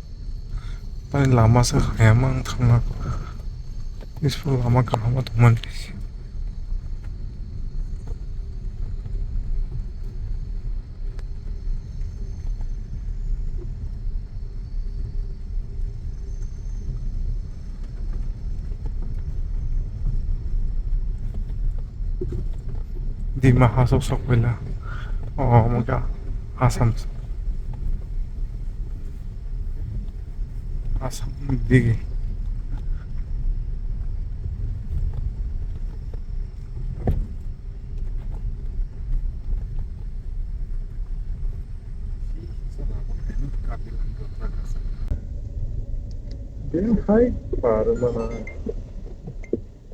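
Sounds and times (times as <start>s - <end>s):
vehicle driving off-road: 0.0s - 49.9s.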